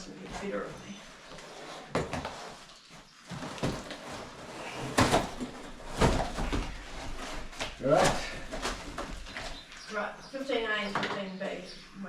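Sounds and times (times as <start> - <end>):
shower parts knocking and clattering: 3.3 - 9.8.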